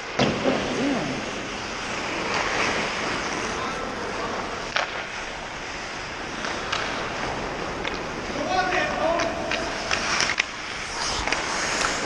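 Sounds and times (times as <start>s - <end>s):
skates scraping ice: 0.0s - 12.0s
hockey stick or puck clack: 4.6s - 5.2s, 6.3s - 12.0s.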